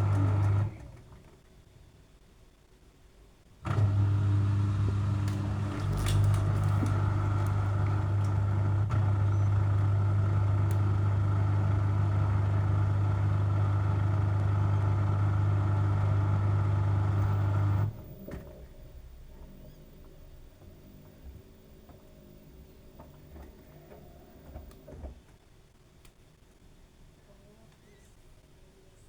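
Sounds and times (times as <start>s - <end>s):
drain pump humming: 3.6s - 18.4s.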